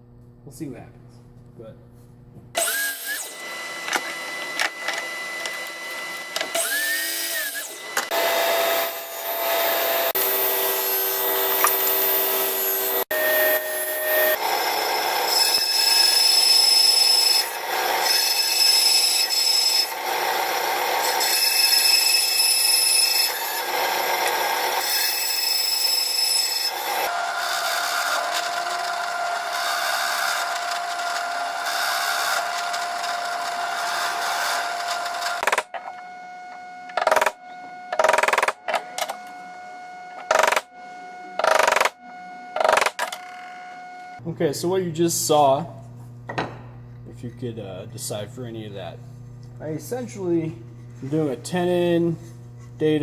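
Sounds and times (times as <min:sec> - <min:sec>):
power tool cutting plywood: 0:02.6 - 0:44.2.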